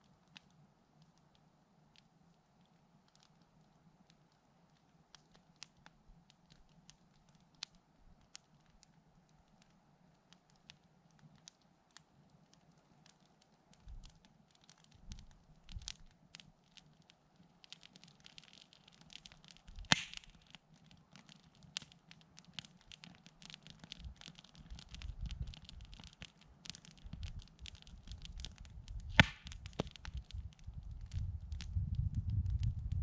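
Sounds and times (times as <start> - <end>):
campfire crackling: 0.0 - 33.0
loud sharp pops of fire: 17.7 - 33.0.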